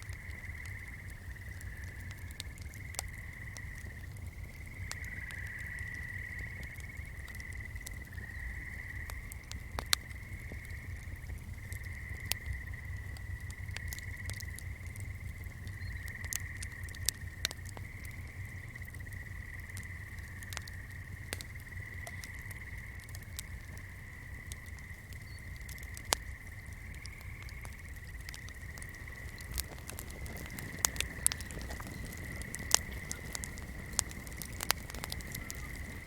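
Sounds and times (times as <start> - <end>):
frogs trilling: 0.0 - 36.0
candle crackling: 25.9 - 36.0.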